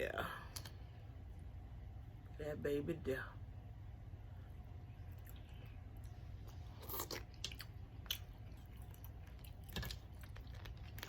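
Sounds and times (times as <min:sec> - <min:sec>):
person chewing food: 0:04.9 - 0:11.0.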